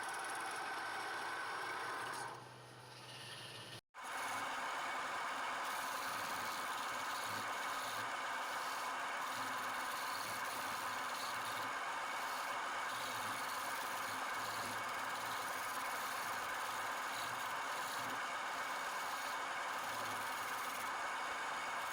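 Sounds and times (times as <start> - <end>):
faint motor hum: 0.0 - 21.9
lathe tool scraping wood: 5.7 - 20.9.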